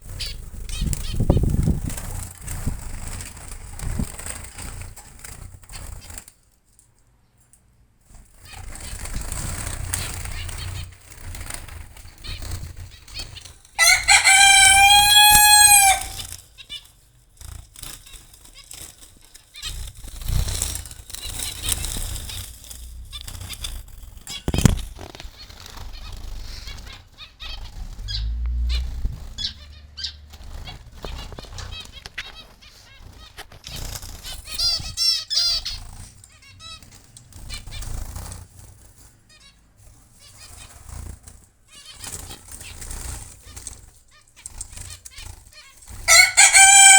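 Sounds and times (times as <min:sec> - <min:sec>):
wings fluttering: 0:00.0 - 0:06.5, 0:08.0 - 0:46.9
loud long bird call: 0:13.8 - 0:16.3, 0:46.1 - 0:46.9
finches chirping: 0:25.4 - 0:38.0.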